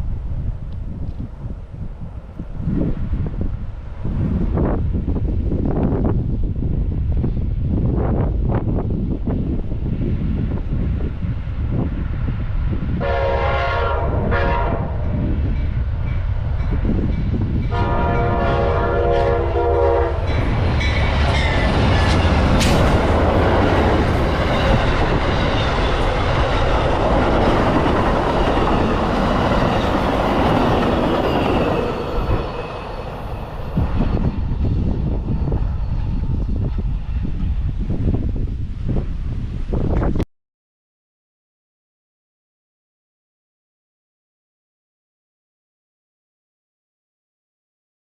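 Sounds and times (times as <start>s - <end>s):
train horn blasts: 13.0s - 15.0s, 17.7s - 22.8s
train wheels clattering over rails: 20.2s - 34.5s.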